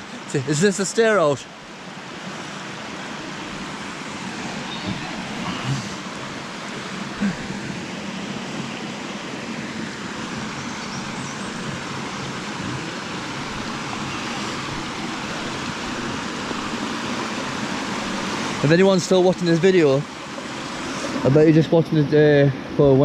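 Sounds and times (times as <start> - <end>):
water tumbling over rocks: 4.9 - 20.0.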